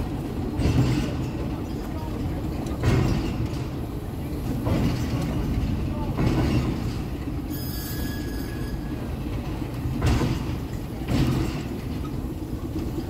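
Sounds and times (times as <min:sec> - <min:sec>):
freight train rolling past: 0:00.0 - 0:13.0
wagon clunks: 0:09.4 - 0:13.0.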